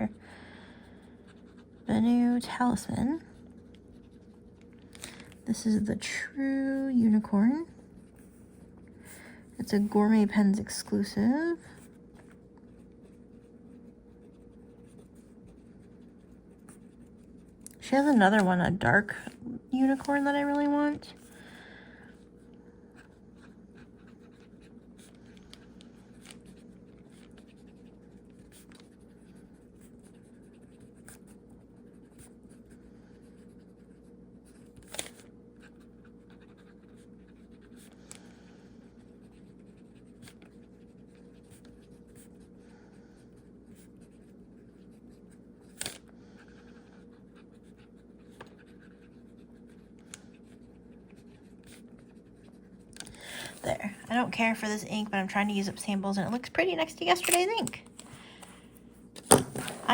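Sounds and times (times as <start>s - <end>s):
low room hum: 0.0s - 59.9s
pen nib scratching paper: 12.6s - 18.5s, 23.0s - 38.0s, 38.8s - 42.6s, 46.4s - 52.9s.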